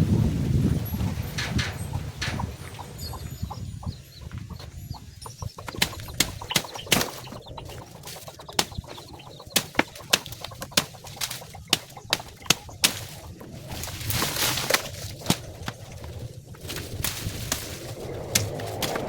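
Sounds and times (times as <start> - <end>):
faint high bird chirps: 0.6 - 14.6
sharp knocks: 5.4 - 13.9.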